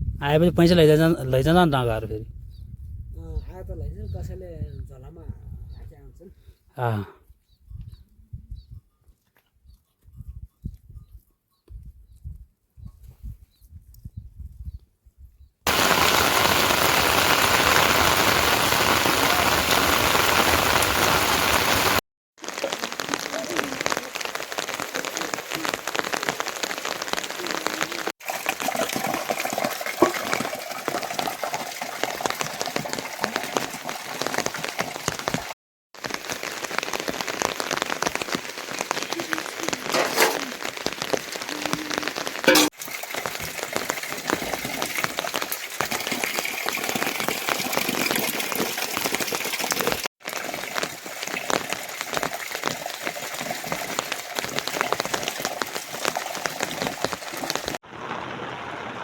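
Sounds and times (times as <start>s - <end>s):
heavy rain: 15.7s - 28.1s, 33.2s - 44.4s, 47.1s - 59.0s.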